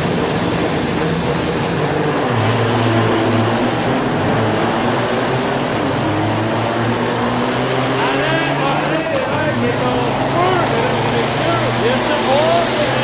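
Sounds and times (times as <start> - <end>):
high thin whistle: 0.0 - 2.4
diesel truck engine running: 0.0 - 13.0.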